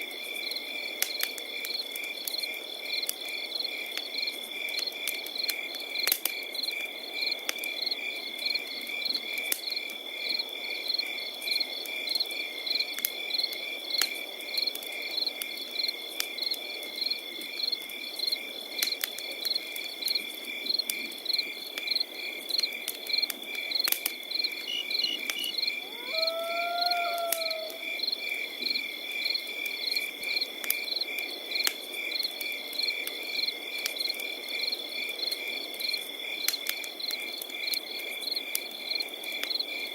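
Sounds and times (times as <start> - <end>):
campfire crackling and popping: 0.0 - 39.9
crickets chirping: 19.5 - 36.6
short animal call: 24.7 - 27.9.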